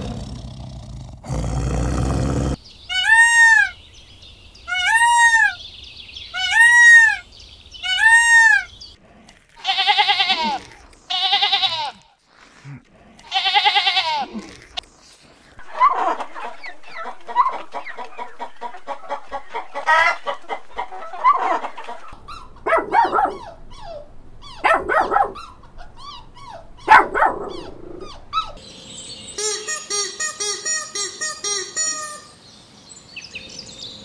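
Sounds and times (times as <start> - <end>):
hen and rooster calling: 1.3 - 3.8, 4.6 - 8.9, 15.6 - 28.7
sheep bleating: 9.6 - 12.1, 13.3 - 14.3
faint high bird chirping: 22.3 - 34.0.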